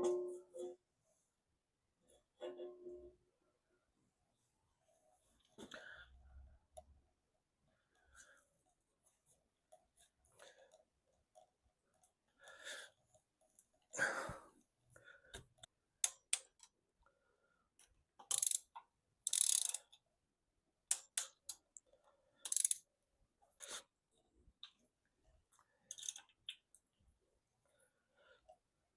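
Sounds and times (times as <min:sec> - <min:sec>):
metal parts clicking and clinking: 0:22.4 - 0:22.8, 0:25.9 - 0:26.4.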